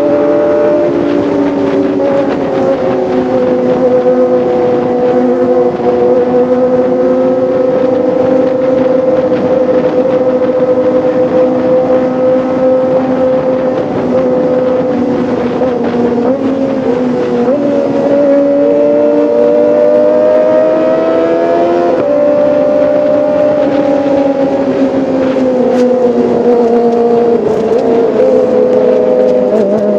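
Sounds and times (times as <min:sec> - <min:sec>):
motorcycle engine at high revs: 0:00.0 - 0:29.9.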